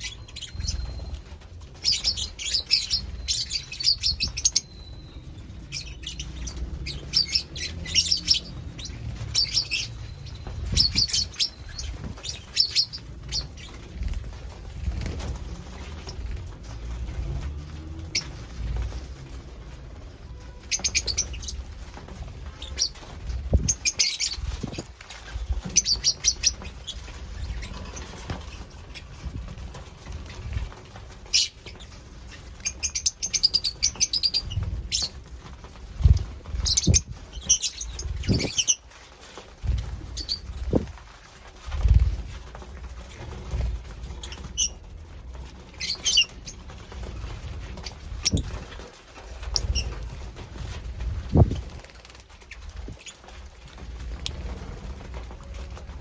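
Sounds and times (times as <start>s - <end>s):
lovebirds chirping: 0.0s - 14.1s, 20.6s - 21.6s, 36.5s - 38.8s
low thumps and rustling: 34.4s - 56.0s.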